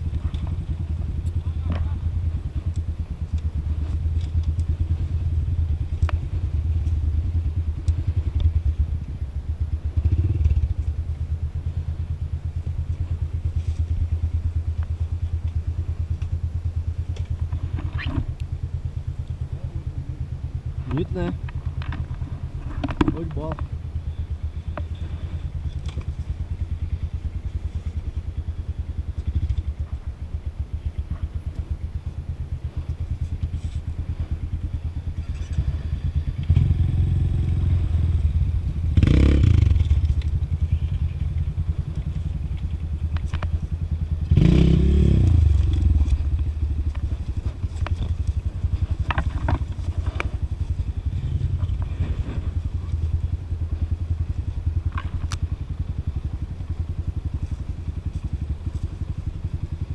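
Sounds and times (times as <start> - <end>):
motorcycle engine at low revs: 0.0 - 59.9
bike clattering over rough ground: 44.3 - 52.7.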